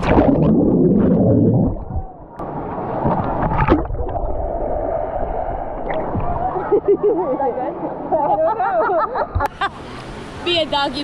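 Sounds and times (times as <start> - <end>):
water washing: 0.0 - 2.2
underwater gurgling and bubbling: 0.0 - 6.6.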